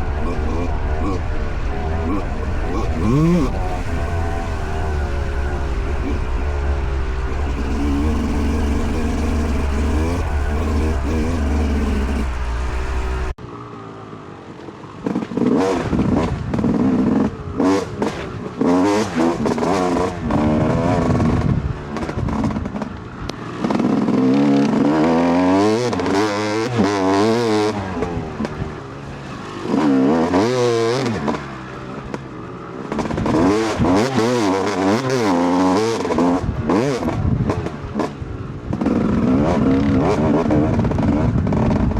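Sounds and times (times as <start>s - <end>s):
dirt bike engine revving: 0.0s - 13.4s, 15.0s - 41.9s.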